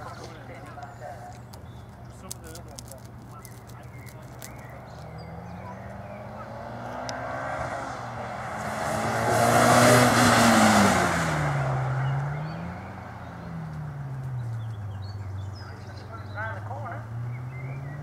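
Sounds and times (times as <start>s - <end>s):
tyre and road noise: 0.0s - 18.0s
car engine accelerating hard: 4.0s - 18.0s.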